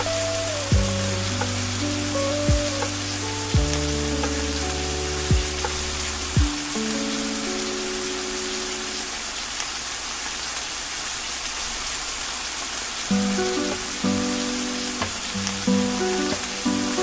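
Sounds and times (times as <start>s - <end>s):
slow ambient music: 0.0s - 9.4s, 13.1s - 17.0s
steady rain hiss: 0.0s - 17.0s.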